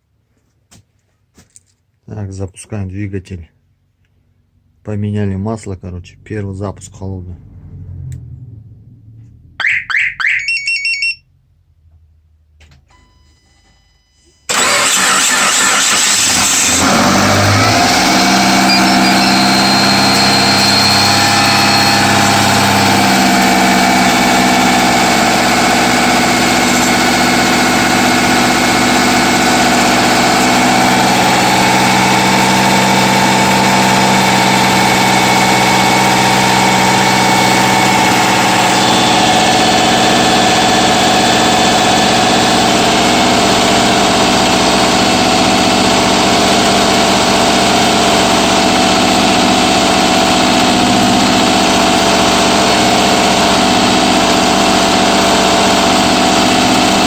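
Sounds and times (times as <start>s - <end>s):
car engine cranking and idling: 4.0s - 10.5s, 14.4s - 57.0s
short electronic beeps: 9.6s - 11.3s, 12.9s - 14.5s, 18.6s - 21.2s.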